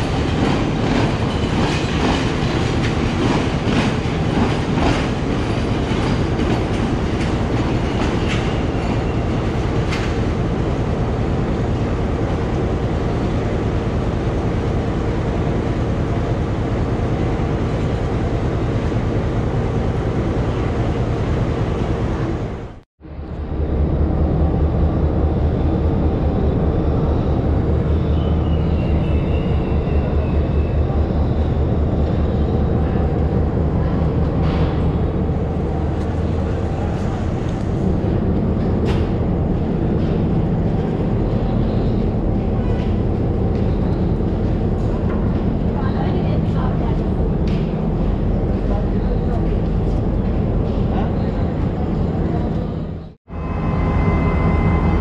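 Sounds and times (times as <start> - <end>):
train wheels clicking over rail joints: 0.0 - 10.6
train rumbling past: 0.0 - 55.0
steady low drone: 9.1 - 55.0.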